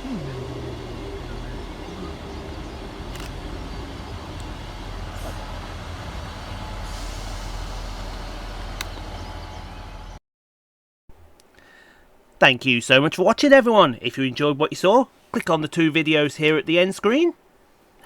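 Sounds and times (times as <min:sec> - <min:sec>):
air hiss: 0:00.0 - 0:09.8
brake squeal: 0:00.0 - 0:10.2
diesel train engines idling: 0:00.0 - 0:10.2.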